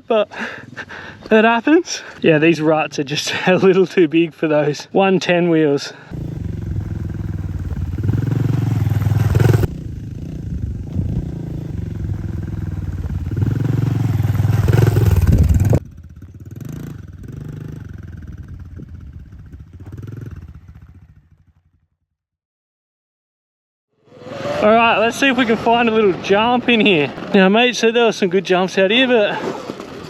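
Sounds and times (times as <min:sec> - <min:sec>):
dirt bike engine revving: 0:06.1 - 0:21.6, 0:24.1 - 0:27.3.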